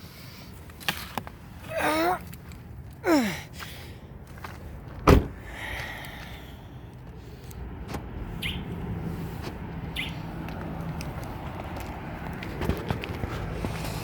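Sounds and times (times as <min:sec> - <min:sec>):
car door shutting: 0:05.0 - 0:05.4, 0:07.8 - 0:08.2.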